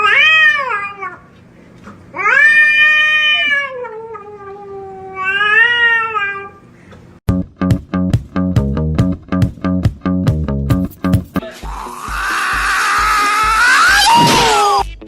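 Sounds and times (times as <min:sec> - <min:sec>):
cat yowling: 0:00.0 - 0:01.3, 0:02.2 - 0:06.6, 0:11.6 - 0:14.9.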